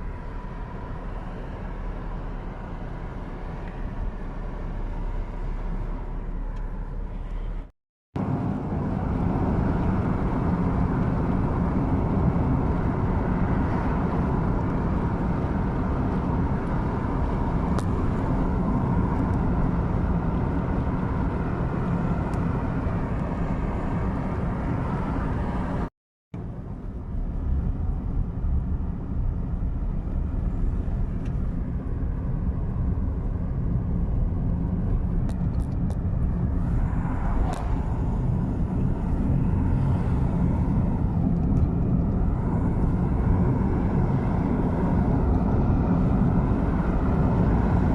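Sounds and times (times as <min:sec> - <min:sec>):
car driving on road: 0:00.0 - 0:47.9.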